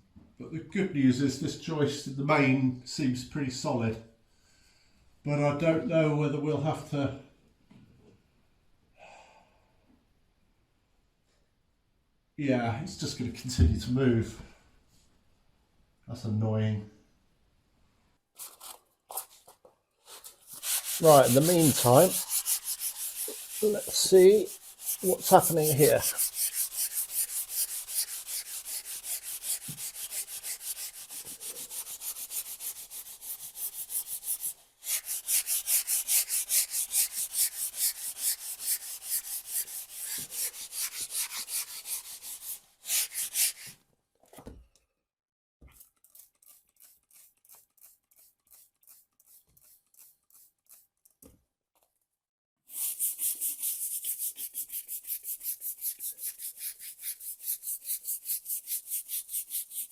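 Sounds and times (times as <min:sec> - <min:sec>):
scrubbing strokes on tiles: 0:18.4 - 0:43.8, 0:45.7 - 0:51.2, 0:52.7 - 0:59.9.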